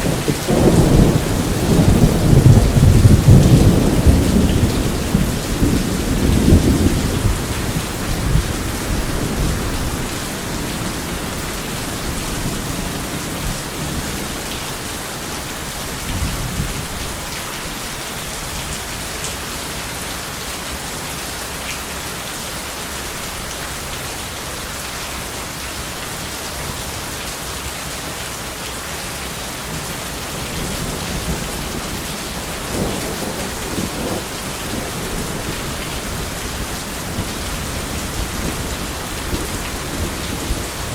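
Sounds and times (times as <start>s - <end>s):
rolling thunder: 0.0s - 17.2s, 30.3s - 40.9s
heavy rain: 0.0s - 40.9s.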